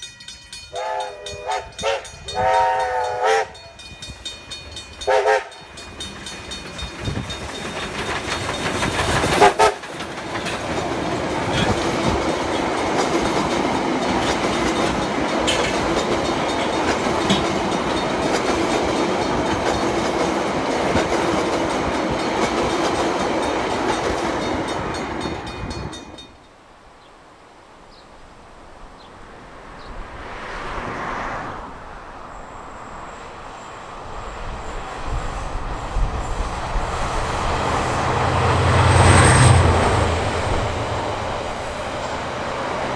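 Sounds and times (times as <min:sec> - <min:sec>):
train wheels and engine passing: 0:00.0 - 0:26.9, 0:28.3 - 0:42.9
train horn blast: 0:00.6 - 0:03.9, 0:05.0 - 0:05.7, 0:09.3 - 0:09.9.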